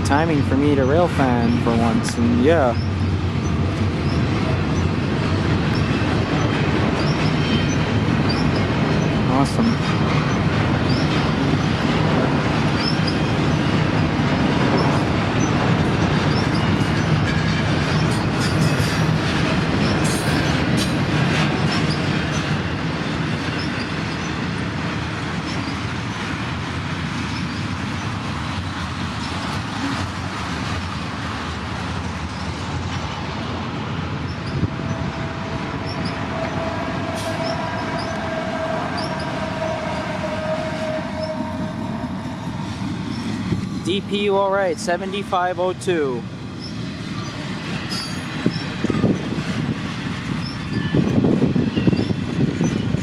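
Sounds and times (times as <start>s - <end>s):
freight train cars rolling: 0.0s - 53.0s
steady squealing tone: 0.2s - 22.8s, 34.2s - 53.0s.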